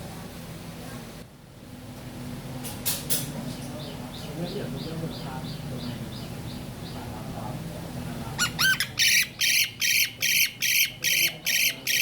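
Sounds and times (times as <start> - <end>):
bird squawking: 8.4 - 12.0.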